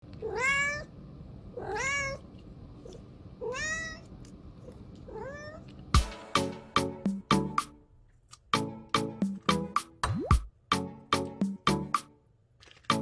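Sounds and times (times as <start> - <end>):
cat meowing: 0.2 - 0.9, 1.6 - 5.8
drum hits of background music: 6.0 - 7.7, 8.6 - 12.1.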